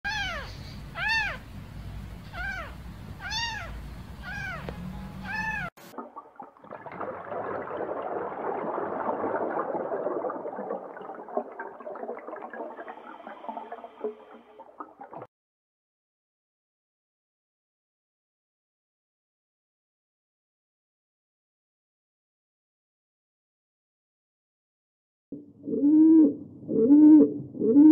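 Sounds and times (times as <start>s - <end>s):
kitten meowing: 0.1s - 1.4s, 2.3s - 5.7s.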